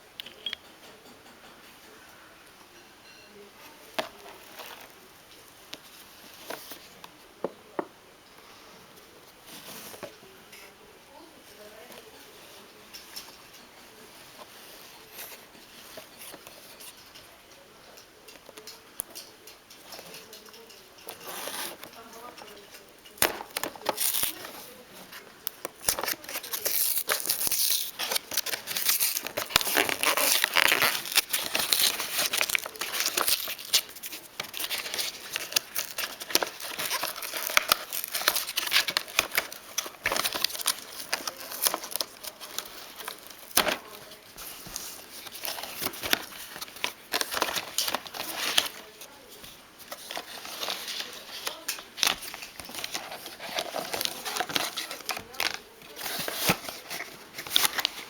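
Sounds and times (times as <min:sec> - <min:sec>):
packaging crinkling and tearing: 0:19.9 - 0:58.0.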